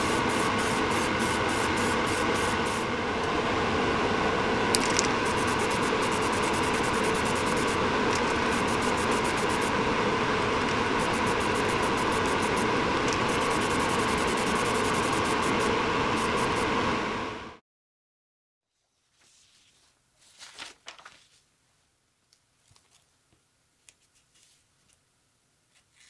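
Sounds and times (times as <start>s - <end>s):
power tool humming with ticking: 0.0s - 2.9s, 4.8s - 16.8s.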